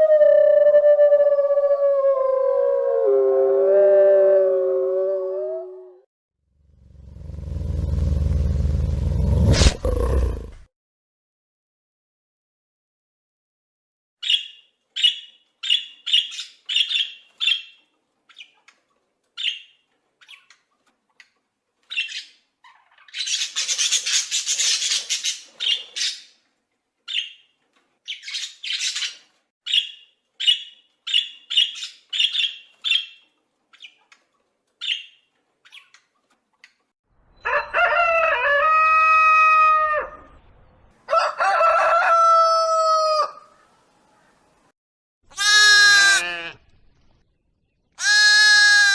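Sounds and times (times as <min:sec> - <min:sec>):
rooster crowing: 0:37.4 - 0:40.4, 0:41.0 - 0:43.6
chickens calling: 0:48.0 - 0:48.9.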